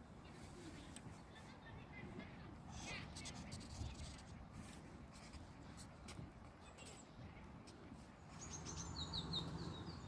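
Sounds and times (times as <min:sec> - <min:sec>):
bird chirping: 0:08.2 - 0:10.0.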